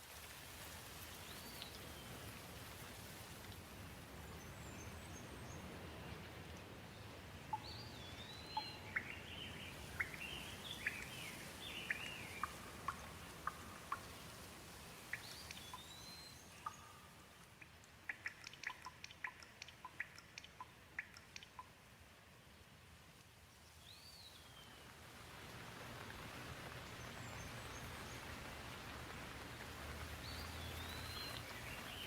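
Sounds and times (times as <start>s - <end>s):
gentle rain falling: 0.0s - 32.0s
bird chirping: 7.5s - 14.3s, 15.1s - 21.7s, 30.2s - 32.0s
water drops dripping: 7.5s - 21.9s, 29.0s - 32.0s.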